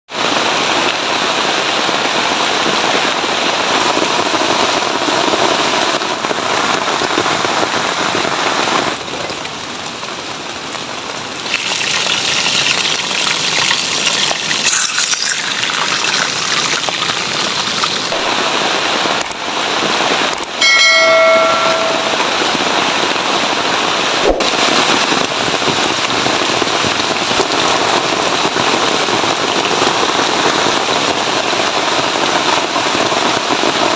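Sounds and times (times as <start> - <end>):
heavy rain: 0.1 - 33.9
brief pitched tone: 20.6 - 22.4.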